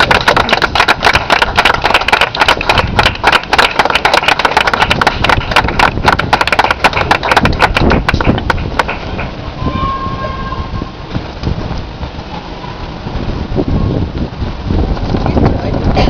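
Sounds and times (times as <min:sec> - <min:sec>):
audience applause: 0:00.0 - 0:09.0.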